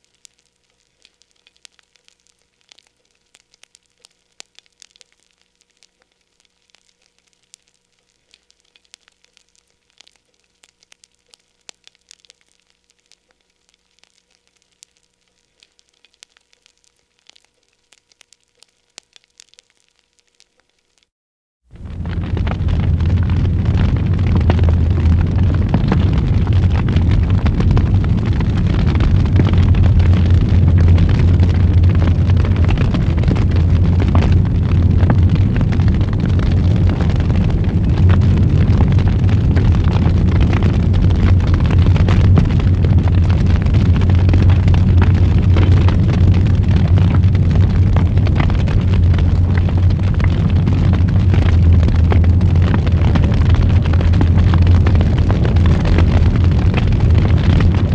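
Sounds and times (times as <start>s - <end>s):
fire crackling and popping: 0.0s - 57.9s
fire flames rumbling: 21.6s - 57.9s.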